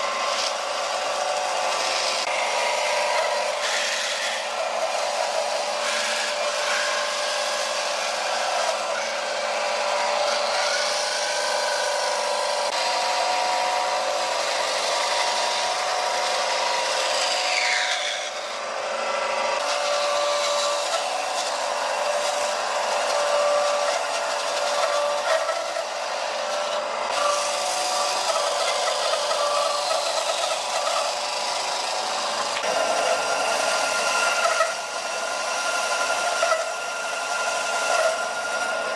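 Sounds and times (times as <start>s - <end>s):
power tool cutting wood: 0.0s - 38.9s.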